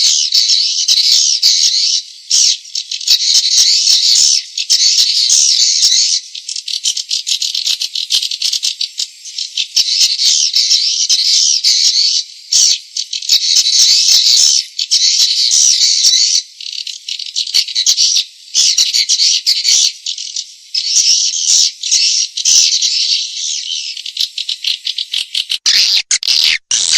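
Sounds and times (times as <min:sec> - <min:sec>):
swiftlets twittering and clicking: 0:25.5 - 0:26.9.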